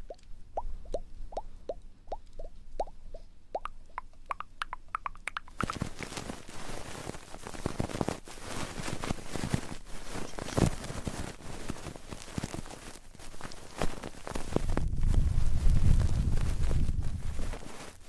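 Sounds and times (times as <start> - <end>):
small rising pops: 0.0 - 6.4
rubbing on microphone: 3.9 - 18.0.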